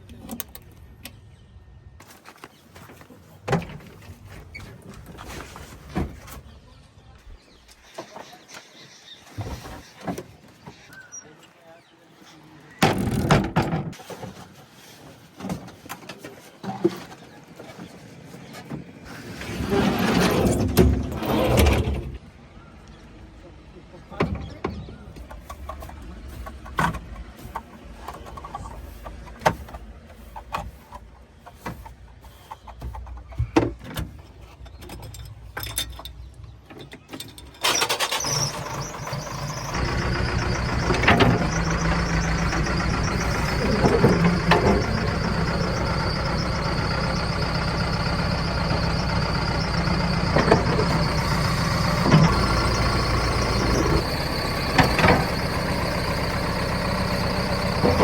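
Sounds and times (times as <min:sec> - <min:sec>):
diesel engine running: 0:37.6 - 0:58.0.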